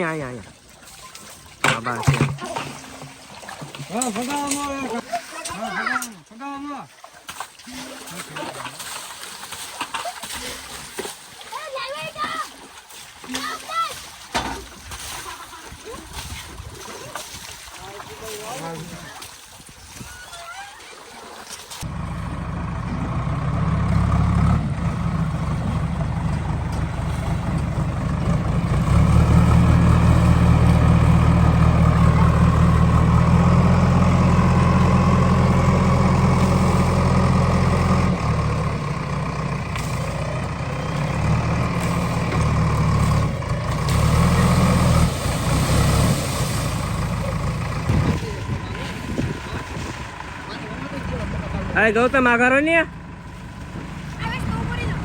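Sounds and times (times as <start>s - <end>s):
heavy diesel engine running: 21.9s - 55.0s.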